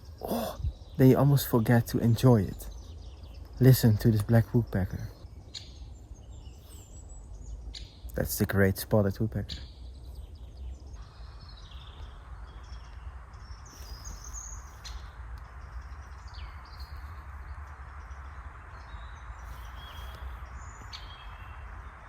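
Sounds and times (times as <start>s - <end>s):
low forest ambience rumble: 0.0s - 22.0s
birds chirping and whistling: 9.2s - 17.2s, 17.9s - 22.0s.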